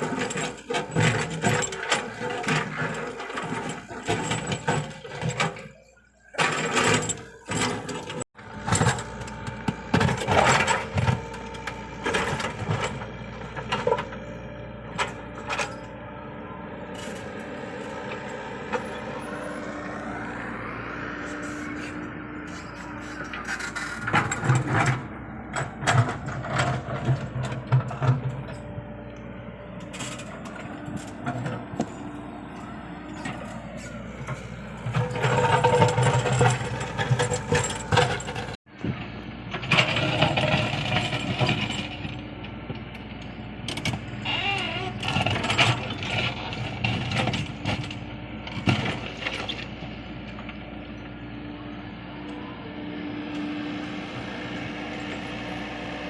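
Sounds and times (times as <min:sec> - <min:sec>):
excavator diesel engine running: 0:00.0 - 0:56.0
bucket clanking on soil and stones: 0:33.2 - 0:38.6.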